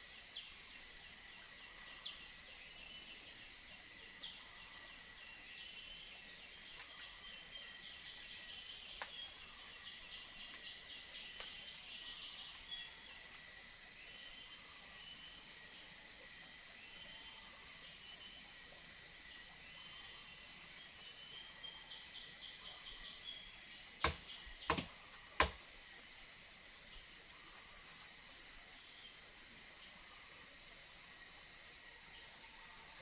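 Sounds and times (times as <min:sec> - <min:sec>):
insects droning: 0:00.0 - 0:33.0
sharp knocks: 0:24.0 - 0:25.6.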